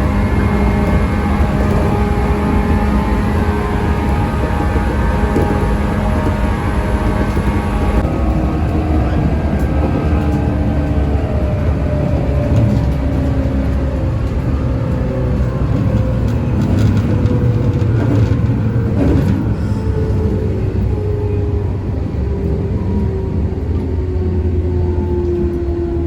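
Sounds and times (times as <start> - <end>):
electric motor whine: 0.0 - 12.3
train wheels rumbling: 0.0 - 26.0.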